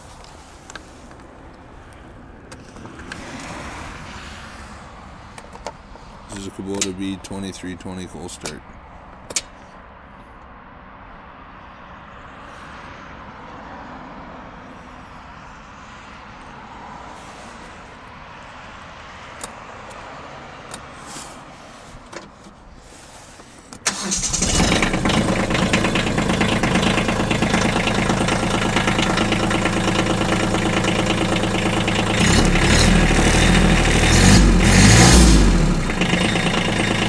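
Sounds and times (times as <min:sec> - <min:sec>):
diesel tractor engine idling: 0:23.8 - 0:37.0.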